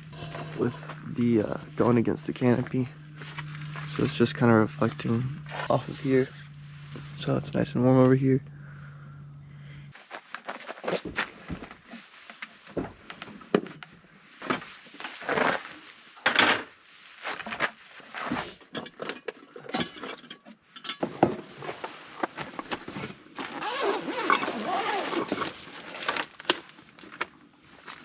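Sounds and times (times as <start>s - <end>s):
gear knocking and rustling: 21.1s - 28.0s.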